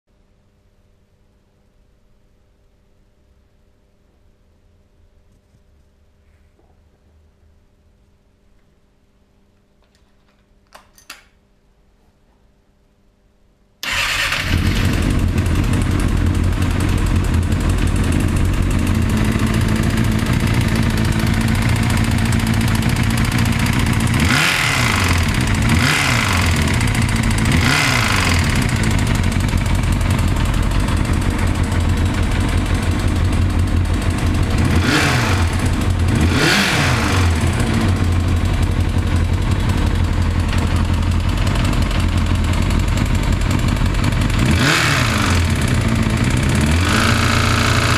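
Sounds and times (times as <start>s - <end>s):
engine revving: 13.8s - 47.9s
motorcycle engine idling: 13.9s - 47.9s.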